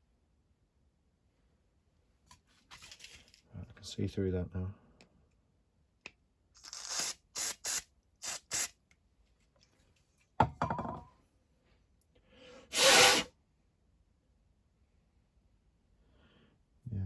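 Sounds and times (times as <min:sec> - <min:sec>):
short hissing bursts: 0:06.6 - 0:08.8, 0:12.7 - 0:13.3.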